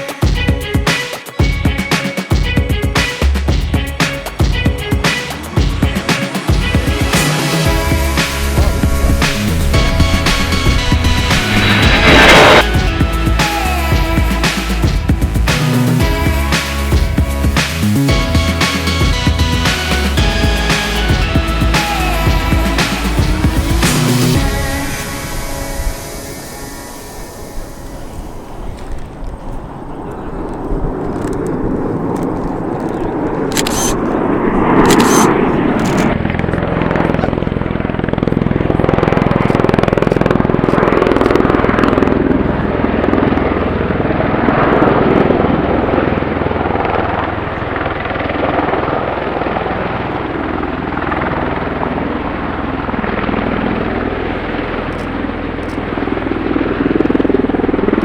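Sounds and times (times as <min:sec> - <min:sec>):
aircraft engine flying past: 0:03.8 - 0:14.0, 0:23.9 - 0:58.0.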